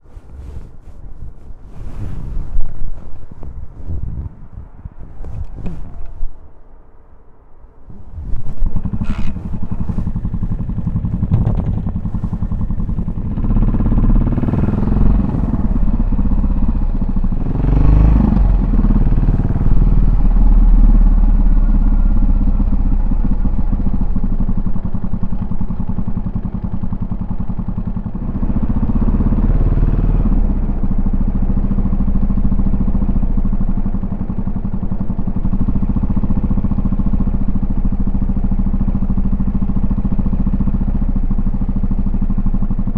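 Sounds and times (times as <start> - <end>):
motorcycle engine exhaust note: 0.0 - 42.9.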